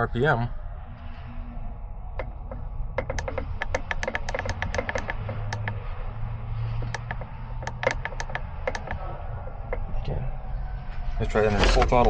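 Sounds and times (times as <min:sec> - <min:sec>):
steady low hum: 0:00.0 - 0:11.4
rapid irregular clicking: 0:02.2 - 0:09.9.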